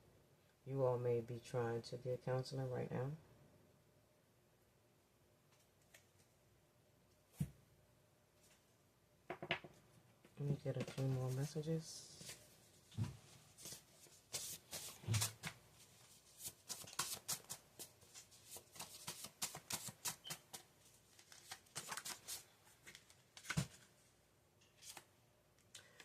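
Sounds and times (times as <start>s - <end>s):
cards being shuffled: 13.6s - 23.9s, 24.8s - 26.0s.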